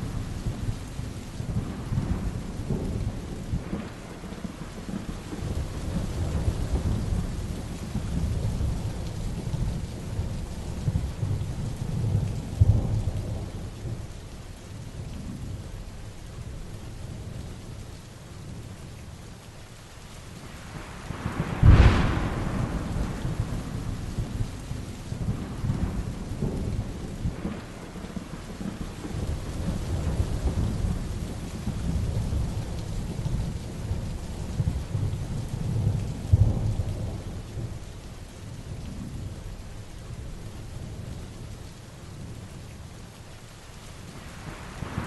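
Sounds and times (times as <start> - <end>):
heavy rain falling: 0.0 - 45.0
thunderclap rolling into rumble: 21.1 - 37.8.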